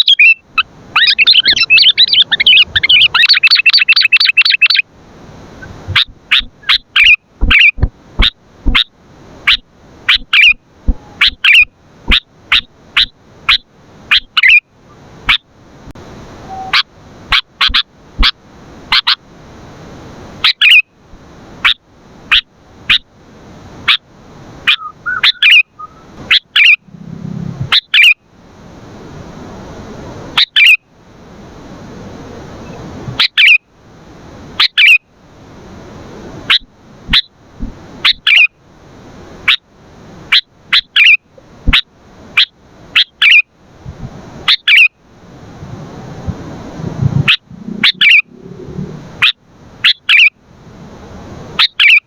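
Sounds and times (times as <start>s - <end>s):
bird chirping sharply: 0.0s - 4.8s, 24.7s - 28.2s, 47.3s - 50.3s, 51.6s - 52.0s.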